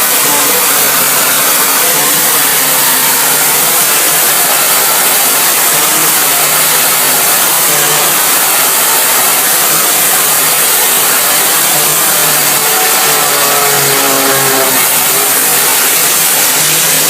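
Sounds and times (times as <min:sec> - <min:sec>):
spray jet hissing: 0:00.0 - 0:17.0.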